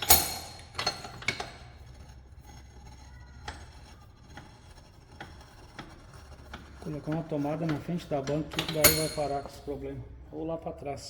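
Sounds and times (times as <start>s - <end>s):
metal tools tapping on metal: 0.0s - 2.0s, 6.6s - 9.8s
low workshop hum: 0.0s - 11.0s.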